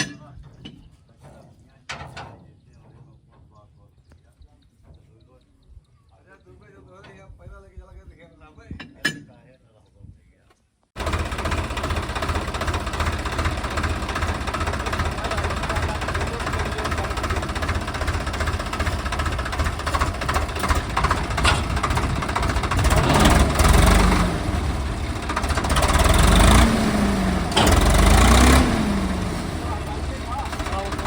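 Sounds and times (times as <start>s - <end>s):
tractor diesel engine running: 11.0s - 31.0s.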